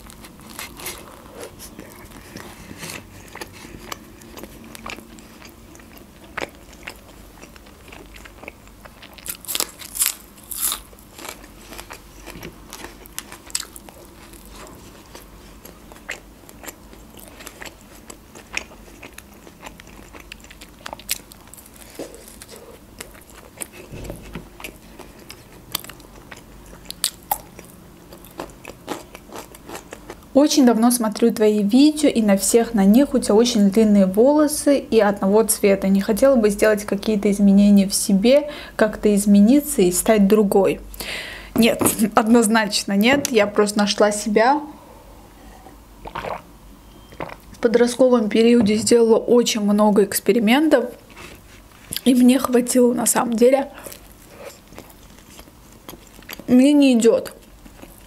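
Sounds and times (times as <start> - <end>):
crunching bites of crusty bread: 6.3 - 15.3.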